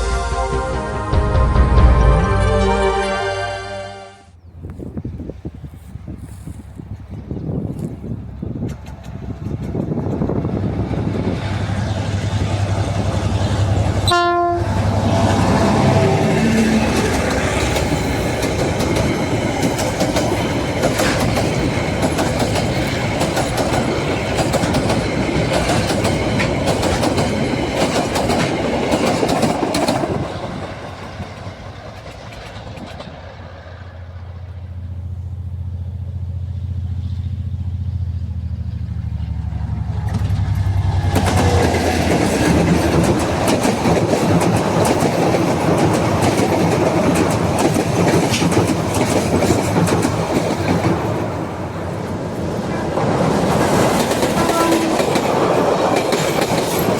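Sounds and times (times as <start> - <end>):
train wheels clattering: 7.7 - 35.4, 39.3 - 56.9
low diesel hum: 32.1 - 43.5.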